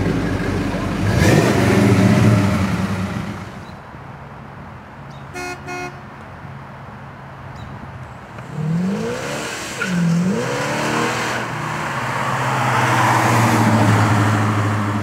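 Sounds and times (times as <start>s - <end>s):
car engine pulling away: 0.0s - 3.7s
car horn toots: 5.3s - 6.1s.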